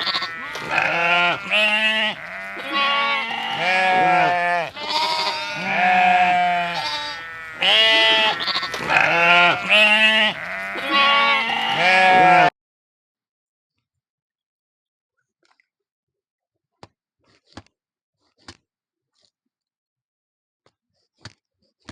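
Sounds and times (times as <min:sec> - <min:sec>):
sheep bleating: 0:00.0 - 0:12.5.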